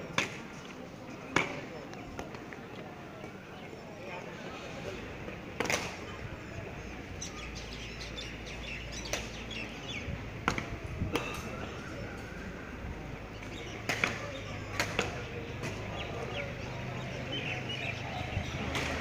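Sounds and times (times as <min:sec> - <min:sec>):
background murmur: 0:00.0 - 0:19.0
small birds chirping: 0:06.0 - 0:10.2, 0:13.2 - 0:19.0.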